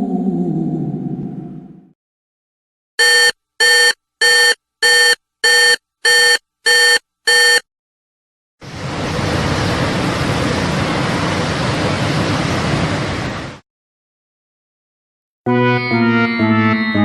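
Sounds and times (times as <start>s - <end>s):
electronic alarm beeps: 3.0s - 7.6s.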